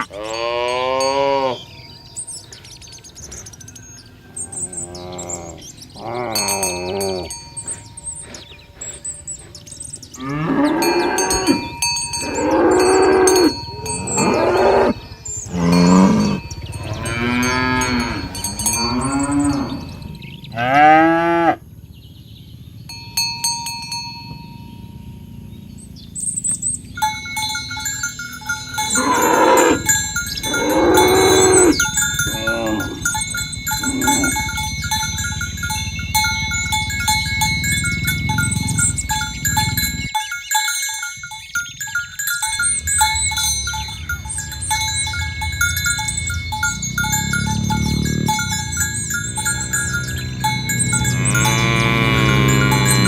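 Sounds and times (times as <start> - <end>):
cattle mooing: 0.0 - 1.8, 4.2 - 21.6, 27.8 - 40.1, 42.8 - 53.0
bells ringing: 0.0 - 20.7, 22.8 - 53.0.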